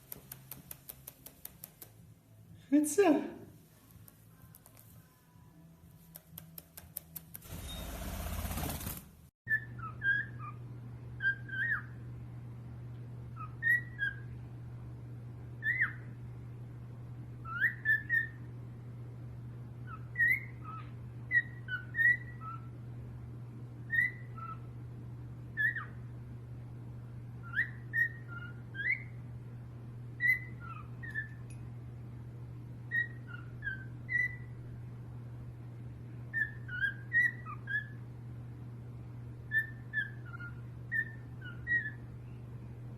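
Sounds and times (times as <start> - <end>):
steady low hum: 0.0 - 42.9
parrot whistled chirps: 9.5 - 10.6, 11.2 - 12.0, 13.4 - 14.3, 17.4 - 18.5, 19.8 - 22.7, 23.9 - 24.7, 25.5 - 26.0, 27.4 - 29.2, 30.2 - 31.4, 32.9 - 34.5, 36.3 - 38.0, 39.5 - 42.1.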